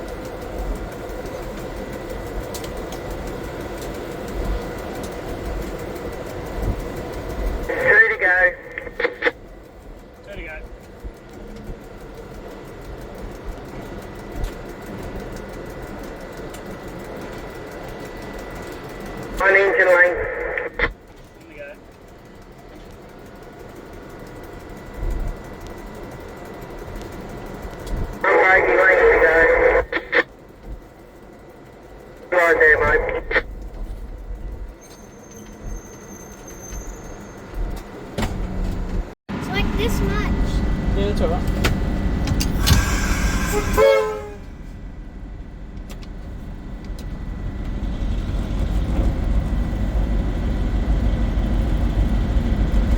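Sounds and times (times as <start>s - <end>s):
diesel locomotive engine running: 0.0s - 52.9s
faint steady whine: 0.6s - 11.1s, 17.0s - 21.6s, 27.8s - 30.4s, 32.0s - 33.7s.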